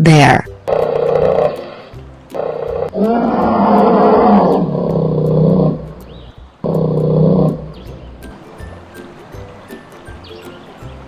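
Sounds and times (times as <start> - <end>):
bear roaring: 0.7 - 8.0.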